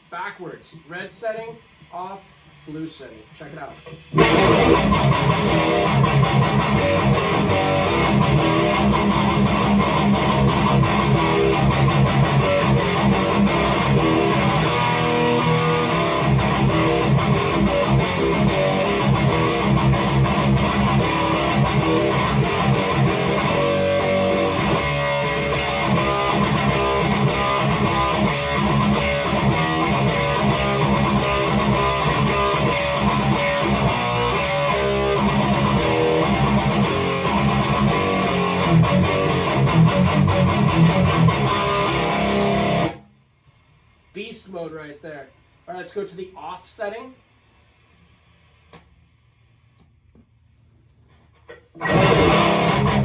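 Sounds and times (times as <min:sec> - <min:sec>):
distorted electric guitar riffs: 0:02.8 - 0:43.1, 0:51.5 - 0:53.0.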